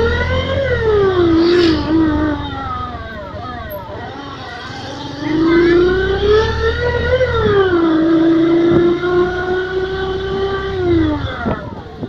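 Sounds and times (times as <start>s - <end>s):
motorcycle engine revving: 0.0s - 12.0s
low rumble: 0.6s - 3.9s.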